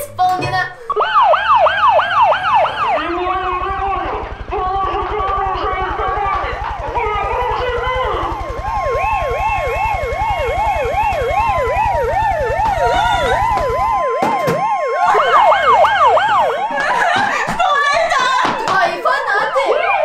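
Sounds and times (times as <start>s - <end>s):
louder higher siren: 0.9s - 17.4s
siren sweeping up and down: 0.9s - 17.4s.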